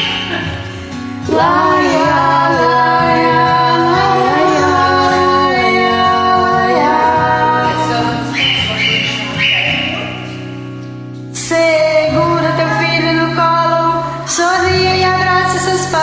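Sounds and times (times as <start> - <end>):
instrumental accompaniment: 0.0 - 14.6
woman singing wordless melody: 1.2 - 8.5, 11.4 - 16.0.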